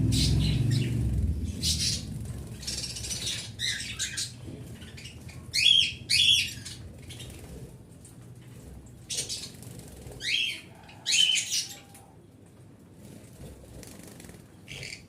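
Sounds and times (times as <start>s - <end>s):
pet birds chirping: 0.0s - 7.7s, 9.0s - 12.0s, 14.0s - 15.0s.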